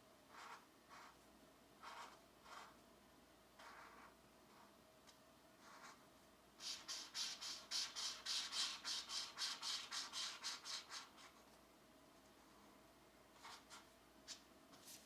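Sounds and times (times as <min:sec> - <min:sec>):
colored pencil scratching on paper: 0:00.3 - 0:01.2, 0:01.8 - 0:02.8, 0:03.6 - 0:04.8, 0:05.6 - 0:06.0, 0:06.6 - 0:11.6, 0:13.4 - 0:15.0.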